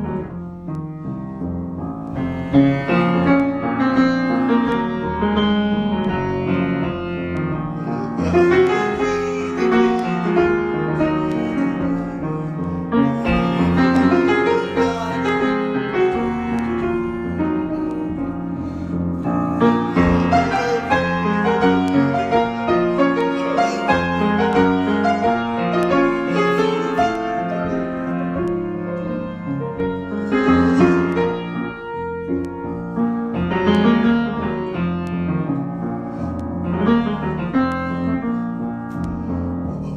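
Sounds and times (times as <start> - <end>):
piano improvisation: 0.0 - 39.9.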